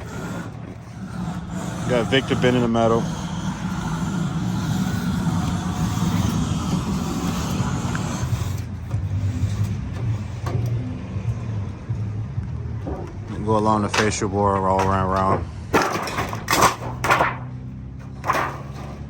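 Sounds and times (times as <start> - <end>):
wide hiss: 0.0 - 8.7
motor humming: 0.0 - 10.2.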